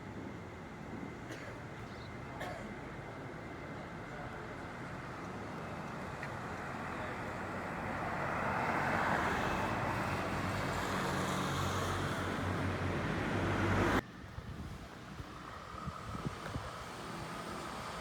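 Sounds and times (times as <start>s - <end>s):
quiet road noise: 0.0s - 18.0s
passing vehicle: 7.0s - 14.0s.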